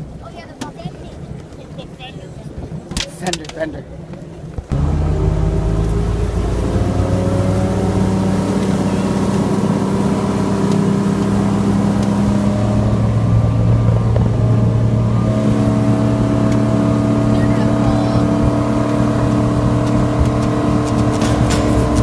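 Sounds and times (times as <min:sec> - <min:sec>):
motorboat engine running: 0:04.6 - 0:22.0.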